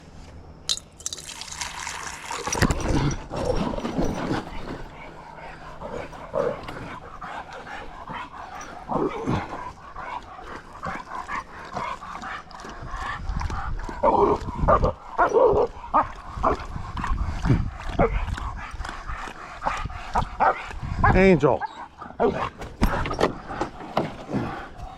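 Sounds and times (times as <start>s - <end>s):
dogs whining: 2.6s - 13.0s
dogs barking: 4.0s - 16.9s, 20.1s - 24.9s.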